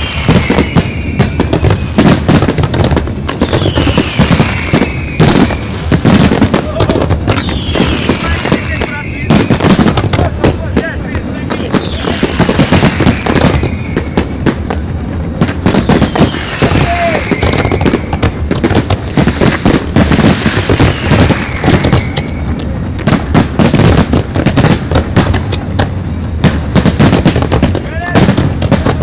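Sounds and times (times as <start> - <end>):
firework whistles falling in pitch: 0.0 - 2.6, 3.4 - 10.0, 11.6 - 14.6, 15.6 - 22.6
fireworks bangs and crackles: 0.0 - 29.0.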